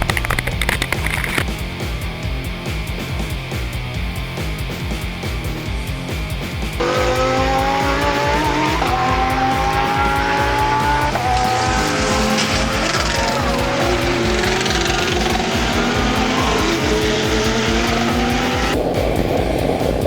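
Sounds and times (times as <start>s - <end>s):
background music with beat: 0.0s - 20.0s
car engine rising tone: 6.8s - 20.0s.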